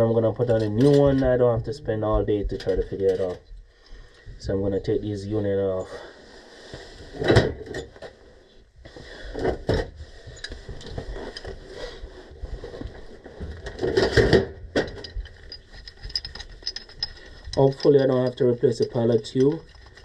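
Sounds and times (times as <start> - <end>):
metal parts knocking and clattering: 0.4 - 1.4, 13.5 - 20.0.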